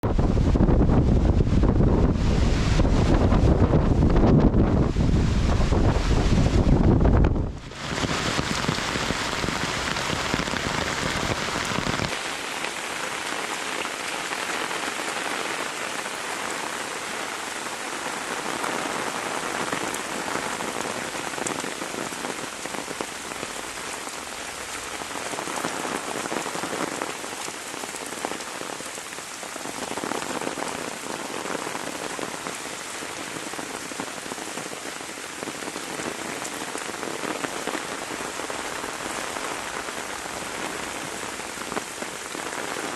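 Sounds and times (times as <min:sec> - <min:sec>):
low rumble of wind: 0:00.0 - 0:12.2
heavy rain falling: 0:00.0 - 0:42.9.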